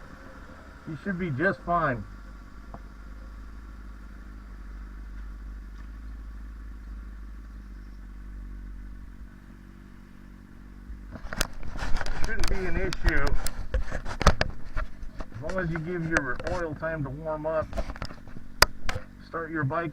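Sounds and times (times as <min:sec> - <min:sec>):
motorcycle engine running: 0:00.0 - 0:19.9
sharp knocks and clicks: 0:11.1 - 0:16.6, 0:17.6 - 0:19.1.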